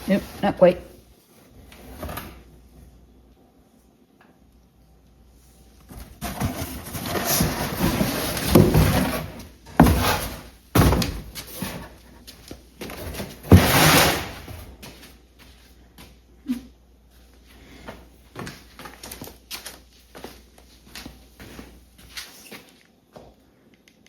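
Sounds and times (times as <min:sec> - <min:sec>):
scraping and rustling: 0:05.9 - 0:15.1.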